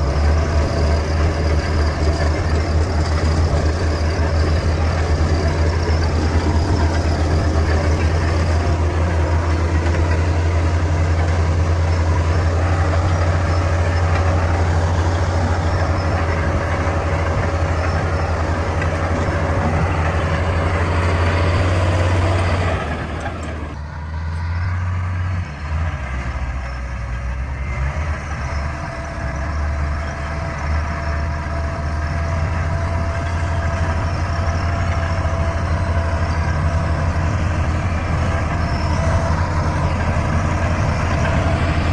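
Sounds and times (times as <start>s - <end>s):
bulldozer diesel engine running: 0.0s - 41.9s.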